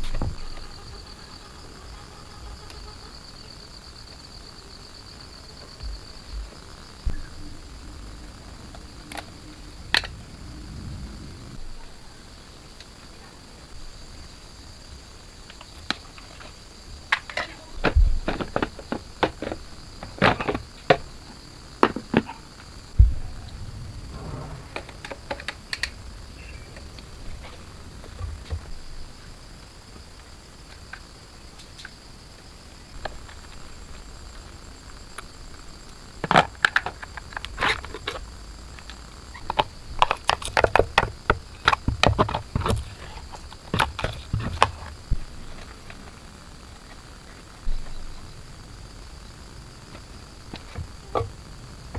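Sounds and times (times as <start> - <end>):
crickets chirring: 0.0 - 51.9
dull low thump: 22.9 - 28.7.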